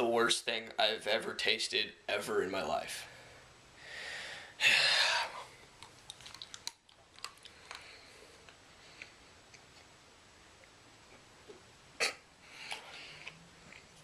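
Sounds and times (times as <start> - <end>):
loud breath: 3.2 - 5.6
mouth chewing clicks: 5.8 - 7.9.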